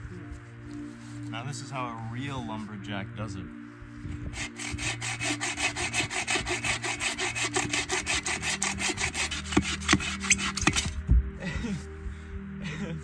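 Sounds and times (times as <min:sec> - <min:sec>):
hand saw cutting wood: 0:04.2 - 0:11.0.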